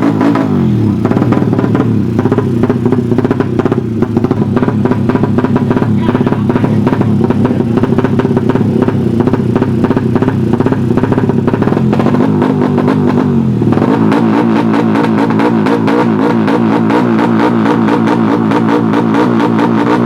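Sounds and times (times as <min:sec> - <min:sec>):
motorcycle engine revving loudly: 0:00.0 - 0:20.0.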